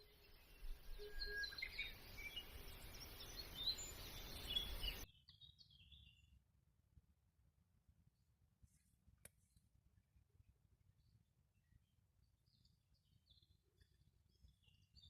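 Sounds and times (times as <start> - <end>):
steady outdoor hiss: 0.0 - 5.0
birds chirping and singing: 0.0 - 6.3.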